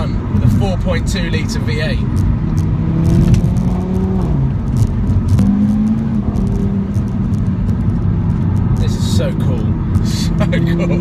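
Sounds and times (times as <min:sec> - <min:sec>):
car engine accelerating hard: 0:00.2 - 0:11.0.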